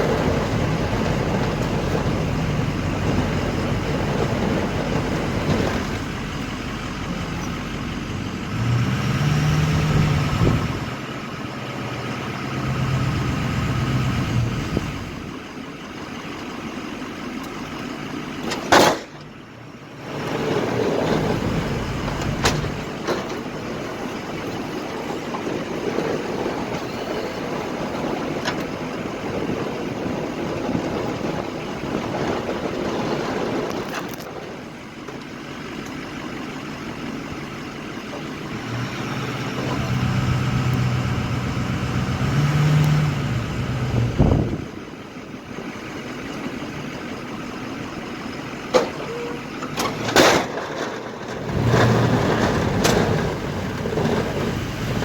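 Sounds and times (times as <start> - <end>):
truck engine humming and revving: 0.0 - 55.0.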